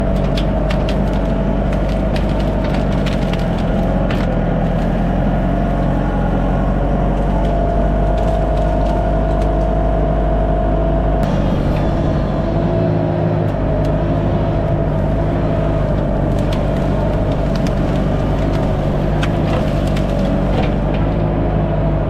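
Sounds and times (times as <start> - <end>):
branches cracking and snapping: 0.0 - 21.6
skid steer engine running: 0.0 - 22.0
hydraulic whine: 8.4 - 22.0.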